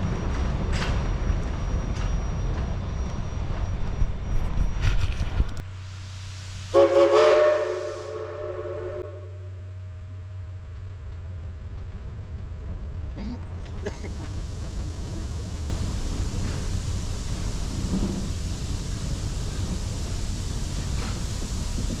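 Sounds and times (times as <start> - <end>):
train rumble with clicks: 0.0 - 22.0
steam locomotive whistle: 6.7 - 9.7.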